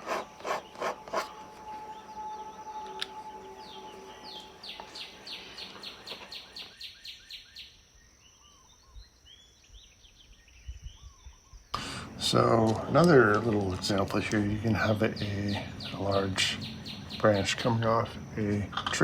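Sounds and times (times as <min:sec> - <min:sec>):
pen scratching on paper: 0:00.0 - 0:01.6
bird trilling and chirping: 0:00.0 - 0:07.7, 0:11.8 - 0:19.0.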